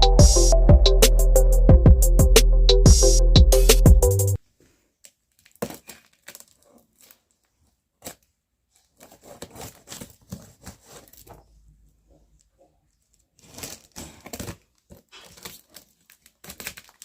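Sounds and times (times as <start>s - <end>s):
packaging crinkling and snapping: 5.0s - 11.6s, 12.4s - 17.0s
packaging rustling: 5.0s - 11.6s, 12.9s - 17.0s.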